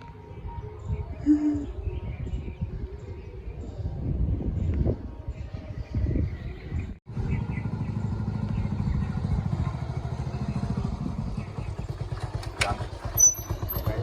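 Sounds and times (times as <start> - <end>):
vehicle engine running: 7.1 - 14.0.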